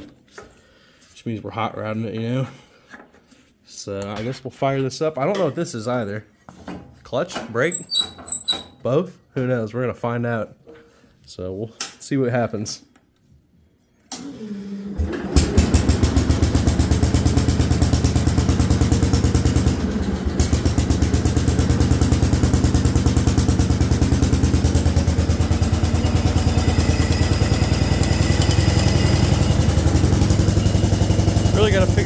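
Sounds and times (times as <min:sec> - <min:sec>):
tractor engine cranking and running: 0:15.0 - 0:32.0.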